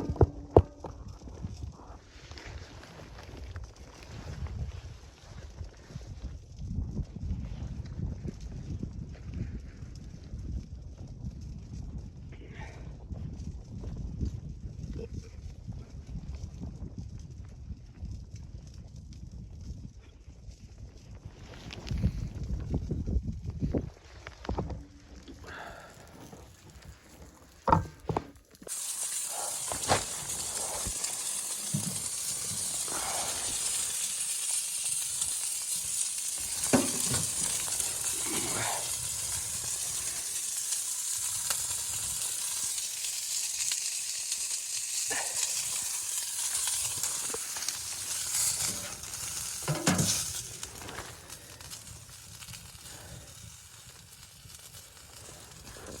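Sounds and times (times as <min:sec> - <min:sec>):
food sizzling in a pan: 0:25.4 - 0:56.0.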